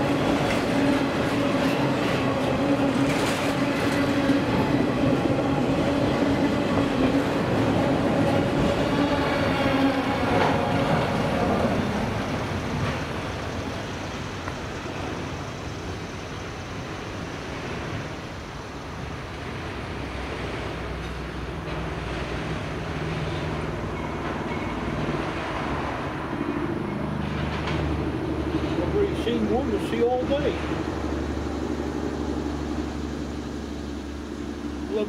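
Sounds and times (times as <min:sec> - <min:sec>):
low engine drone: 0:00.0 - 0:35.0
train rolling on tracks: 0:00.0 - 0:35.0.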